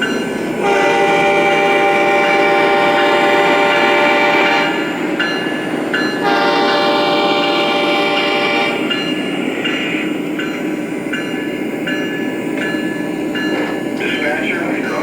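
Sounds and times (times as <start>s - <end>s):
model train running: 0.0s - 15.0s
model train horn: 0.6s - 4.9s, 6.2s - 8.9s.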